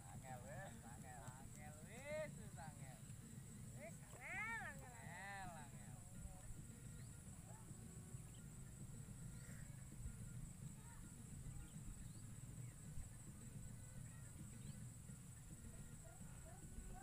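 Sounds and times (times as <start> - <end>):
steady high hiss: 0.0 - 17.0
bird chirps: 11.5 - 15.9.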